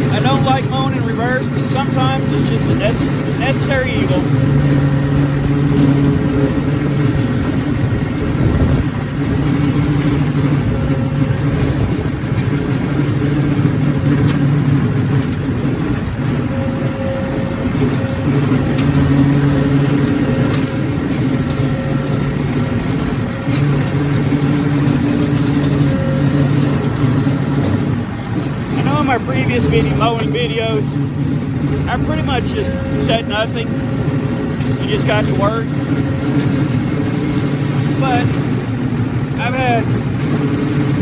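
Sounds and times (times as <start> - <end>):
rotary cutter mechanical rumble: 0.0 - 41.0
tractor diesel engine under load: 0.0 - 41.0.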